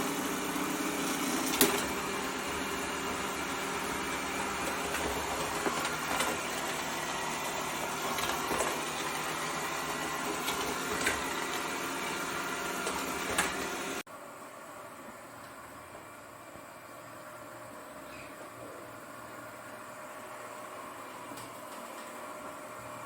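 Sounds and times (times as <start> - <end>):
robot vacuum motor running: 0.0 - 14.0.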